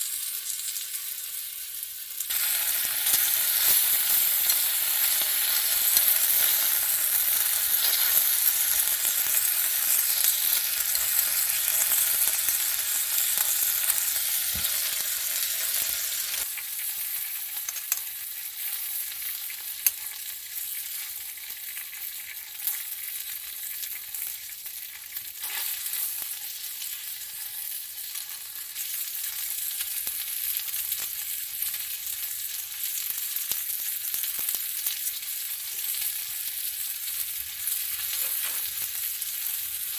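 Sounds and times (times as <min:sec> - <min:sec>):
meat sizzling over fire: 0:00.0 - 0:39.9
sharp pops: 0:02.3 - 0:16.4.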